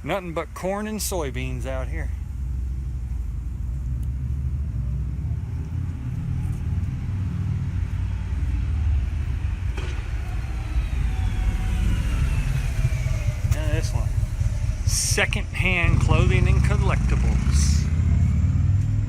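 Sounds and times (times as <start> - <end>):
car driving rumble: 0.0 - 19.0
high tone gliding down: 8.2 - 18.4.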